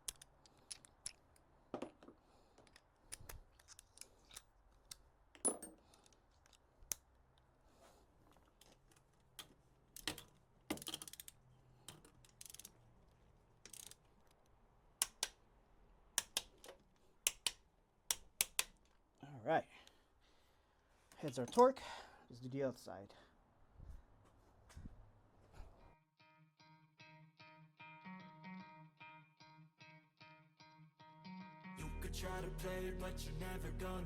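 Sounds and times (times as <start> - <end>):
ratchet rasping: 10.8 - 12.7
torque wrench clicks: 12.0 - 12.7, 13.7 - 14.0, 17.3 - 18.8.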